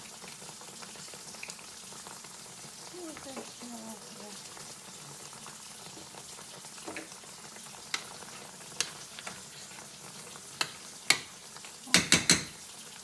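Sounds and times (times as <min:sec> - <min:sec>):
food sizzling in a skillet: 0:00.0 - 0:13.0
utensil knocking against pan: 0:11.9 - 0:12.6.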